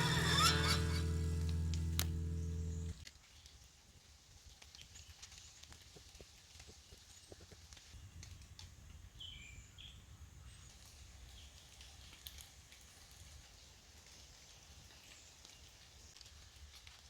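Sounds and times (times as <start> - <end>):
bird chirps: 0.0 - 3.0
low rumble: 0.0 - 3.0
soft rain drop ticks: 10.8 - 17.0.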